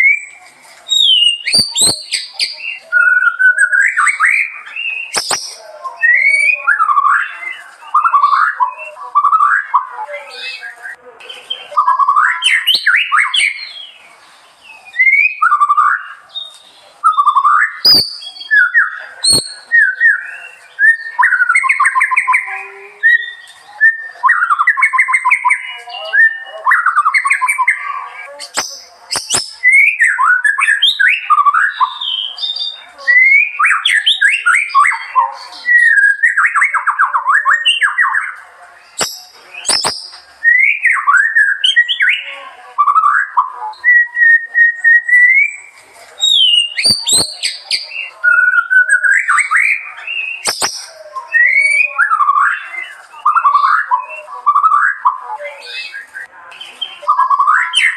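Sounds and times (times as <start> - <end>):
songbird singing: 0.0 - 57.9
sharp clicks: 5.2 - 5.6, 28.5 - 29.5, 50.5 - 50.9.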